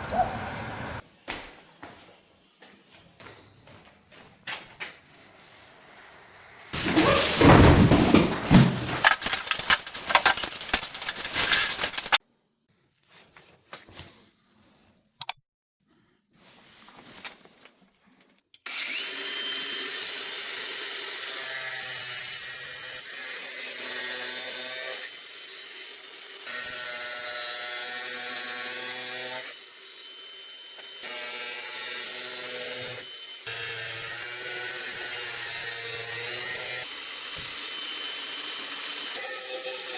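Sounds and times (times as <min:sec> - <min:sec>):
power tool cutting: 0:18.7 - 0:39.9
power tool running: 0:35.7 - 0:39.9.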